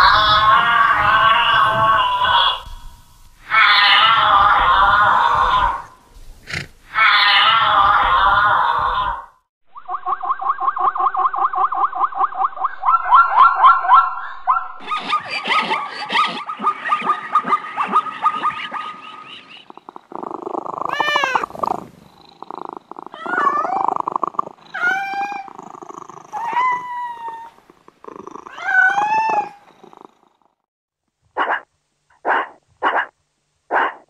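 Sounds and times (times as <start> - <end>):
cat meowing: 3.5 - 5.8, 20.8 - 21.6, 22.6 - 27.6, 28.4 - 29.7.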